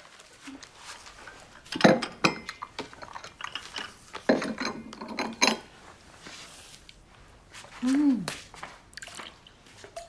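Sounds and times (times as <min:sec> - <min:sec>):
dishes and cups clinking: 0:01.3 - 0:05.7.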